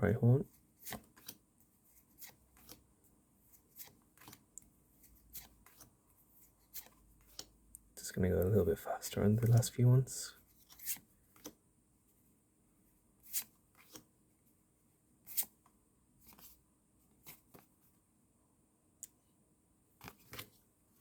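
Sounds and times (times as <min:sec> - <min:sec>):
cards swishing and tapping: 0:00.8 - 0:01.4, 0:02.0 - 0:02.8, 0:03.5 - 0:07.6, 0:10.5 - 0:11.6, 0:20.0 - 0:20.6.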